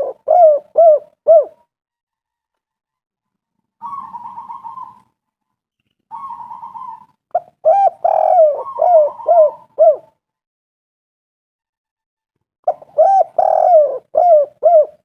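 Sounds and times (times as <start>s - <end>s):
dove cooing: 0.0s - 1.6s, 3.8s - 5.1s, 6.1s - 10.2s, 12.7s - 15.0s.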